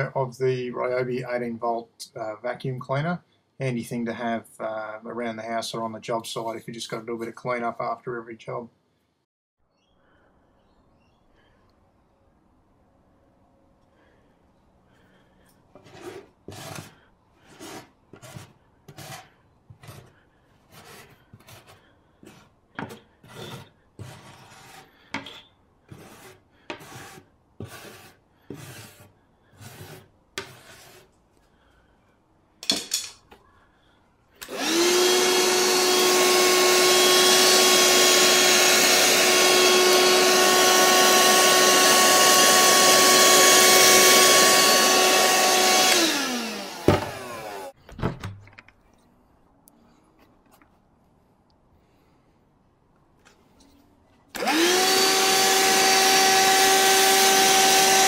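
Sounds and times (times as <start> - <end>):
hand-sawing wood: 15.7 - 31.2, 34.5 - 47.8, 54.4 - 58.0
hand vacuum whining: 15.8 - 31.0, 34.4 - 47.8, 54.3 - 58.0.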